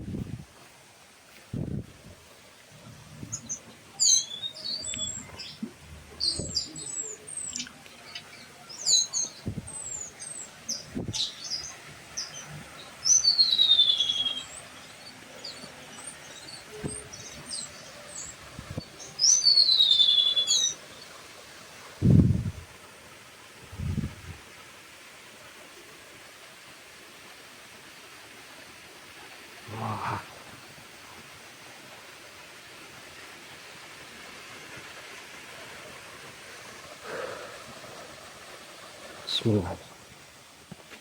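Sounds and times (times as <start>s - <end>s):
birds chirping and whistling: 3.3s - 5.6s, 6.2s - 21.1s.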